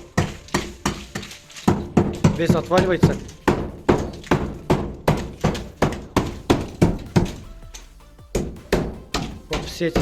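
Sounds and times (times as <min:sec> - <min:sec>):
plaster rattling as it breaks: 0:00.0 - 0:07.9
blows knocking plaster off wall: 0:00.0 - 0:10.0.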